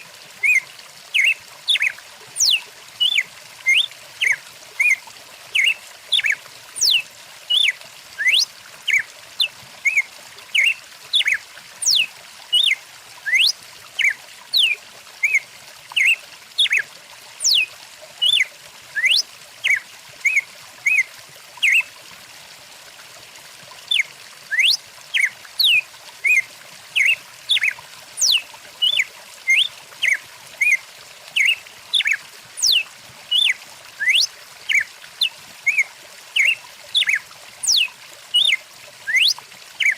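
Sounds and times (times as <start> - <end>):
stream rushing: 0.0 - 15.4, 18.2 - 21.8, 27.0 - 30.8, 31.4 - 34.9, 35.6 - 39.9
small birds chirping: 0.4 - 15.4, 17.4 - 18.4, 19.0 - 21.0, 24.6 - 26.4, 27.0 - 30.8, 31.4 - 35.8, 36.4 - 39.9.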